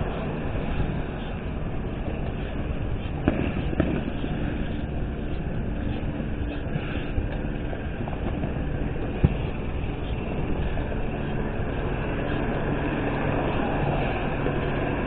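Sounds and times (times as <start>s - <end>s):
bicycle road noise: 0.0s - 15.0s
wind rumble: 0.0s - 15.0s
fireworks bangs: 3.2s - 4.2s.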